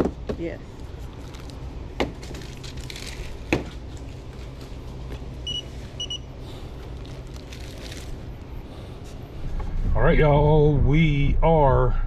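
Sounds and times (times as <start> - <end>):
steady low hum: 0.0 - 12.0
high electronic beeps: 5.4 - 6.3.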